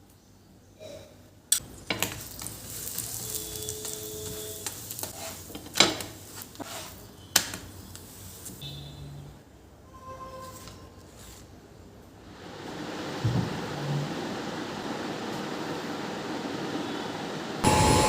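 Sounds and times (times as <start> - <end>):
food sizzling in a pan: 1.6 - 7.1.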